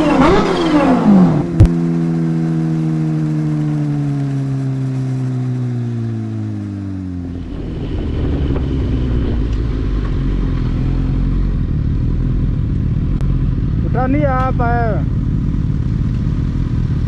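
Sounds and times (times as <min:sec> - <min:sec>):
rough low engine rumble: 0:00.0 - 0:05.0
motorcycle engine decelerating: 0:00.0 - 0:06.2, 0:07.1 - 0:17.0.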